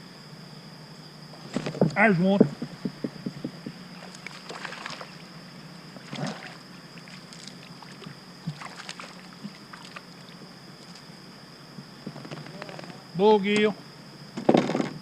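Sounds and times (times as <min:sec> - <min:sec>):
faint steady hum: 0:00.0 - 0:15.0
water splashing at kayak: 0:04.0 - 0:05.2, 0:07.8 - 0:10.0.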